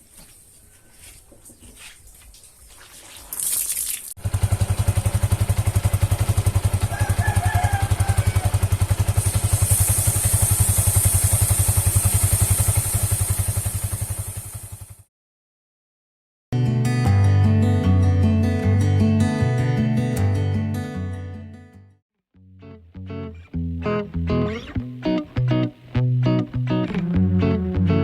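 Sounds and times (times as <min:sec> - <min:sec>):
motorcycle engine running: 0:04.2 - 0:15.1.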